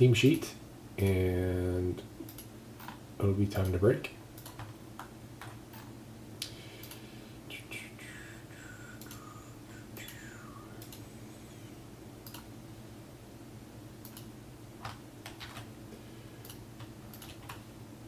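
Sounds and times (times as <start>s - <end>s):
steady low hum: 0.0s - 18.0s
keyboard and mouse clicks: 4.4s - 5.9s, 12.2s - 12.5s, 14.0s - 15.7s, 16.4s - 17.6s.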